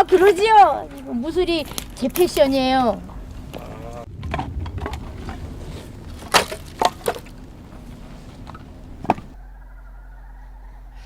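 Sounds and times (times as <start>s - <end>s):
wood knocking: 4.2s - 9.4s
axe splitting firewood: 5.1s - 9.4s.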